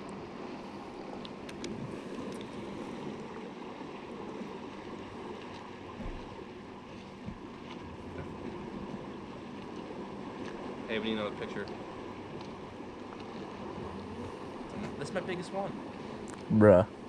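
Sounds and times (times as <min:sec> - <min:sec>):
river water rushing: 0:00.0 - 0:17.0
wind on microphone: 0:13.6 - 0:15.0.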